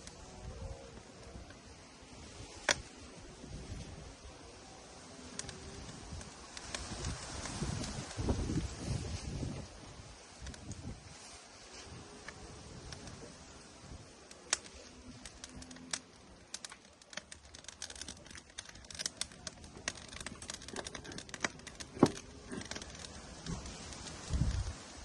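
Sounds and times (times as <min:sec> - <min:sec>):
firewood crackling: 0:00.0 - 0:25.0.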